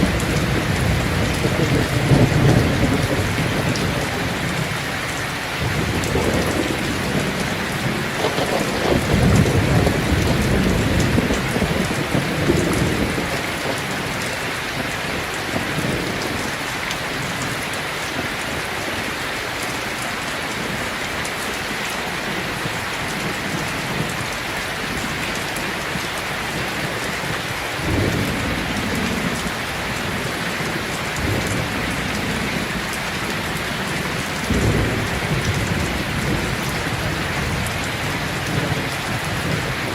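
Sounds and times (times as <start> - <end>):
deep rolling thunder: 0.0 - 17.4, 25.9 - 39.9
steady rain falling: 0.0 - 39.9.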